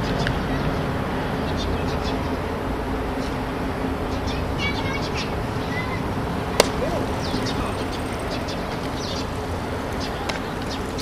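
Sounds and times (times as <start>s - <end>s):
open-air noise: 0.0s - 11.0s
small birds chirping: 1.4s - 2.4s, 4.0s - 11.0s
baseball bat crack: 6.5s - 7.4s.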